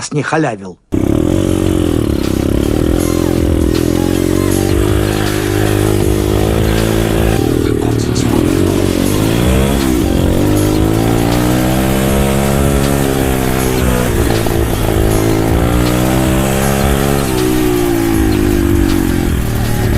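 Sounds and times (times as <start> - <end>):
motorbike engine revving: 0.9 - 19.9.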